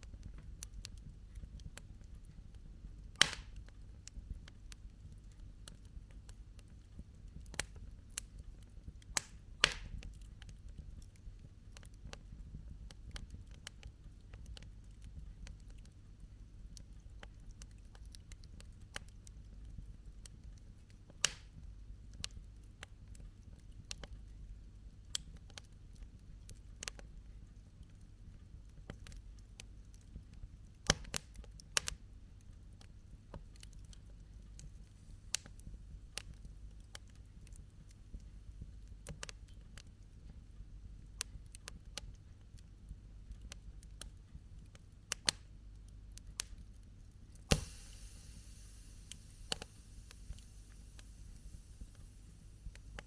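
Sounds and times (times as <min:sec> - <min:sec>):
campfire crackling: 0:00.4 - 0:16.0, 0:33.3 - 0:39.9, 0:43.2 - 0:53.0
low steady rumble: 0:46.4 - 0:53.0.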